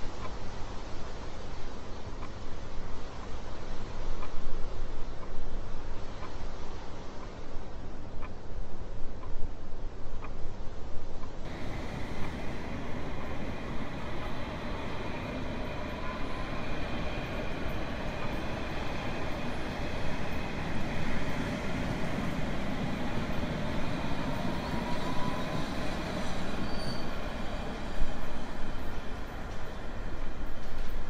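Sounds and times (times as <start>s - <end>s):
train rumbling on rails: 11.2s - 31.0s
train wheels squealing: 11.5s - 31.0s.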